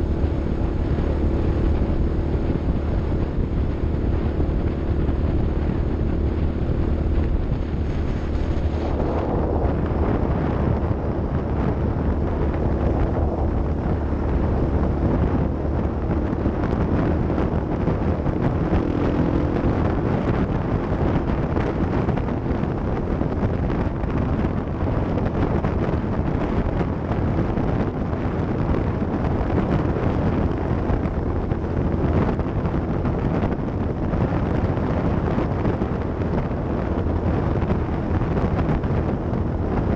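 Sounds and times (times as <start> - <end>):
off-road vehicle engine running: 0.0 - 39.9
road noise: 0.0 - 39.9
wind buffeting microphone: 0.0 - 39.9.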